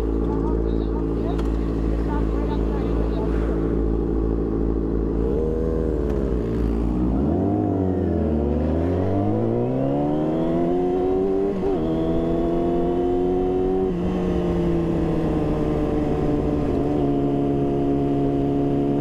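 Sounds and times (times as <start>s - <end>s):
sport bike engine accelerating: 1.3s - 19.0s.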